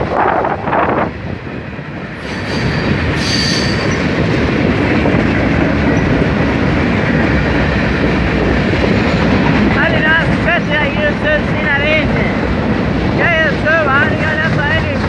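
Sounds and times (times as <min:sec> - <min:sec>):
freight train wheels clattering: 0:01.1 - 0:15.0
high wheel squeal: 0:02.2 - 0:04.1.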